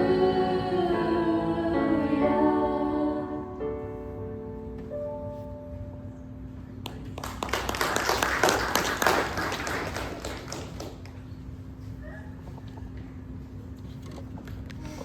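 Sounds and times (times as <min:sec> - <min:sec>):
congregation applauding: 0:06.8 - 0:11.2.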